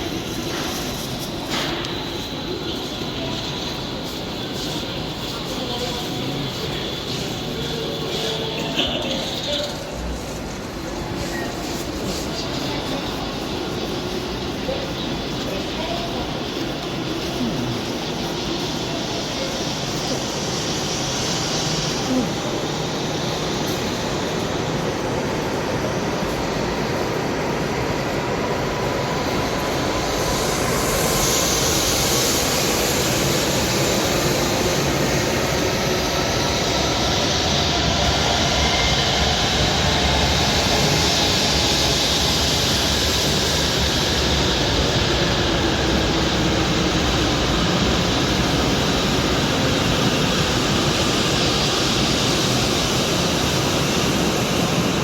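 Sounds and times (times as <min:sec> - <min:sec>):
train rushing and rumbling: 0:00.0 - 0:55.0.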